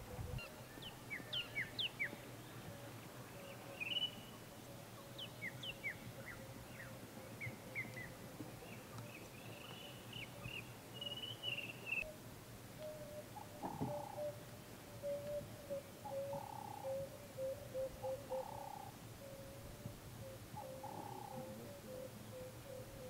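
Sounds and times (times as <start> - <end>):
faint low hum: 0.0 - 23.0
small birds chirping: 0.2 - 12.2.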